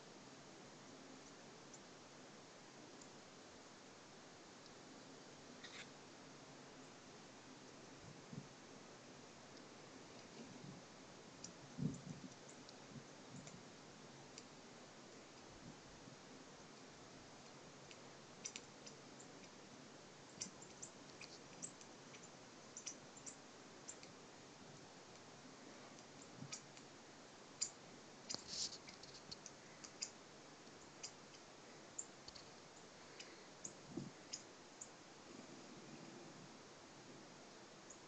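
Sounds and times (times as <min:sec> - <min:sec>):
faint small bird calls: 0:05.6 - 0:06.0, 0:17.9 - 0:19.6, 0:20.2 - 0:24.2, 0:25.7 - 0:26.8, 0:27.5 - 0:36.2.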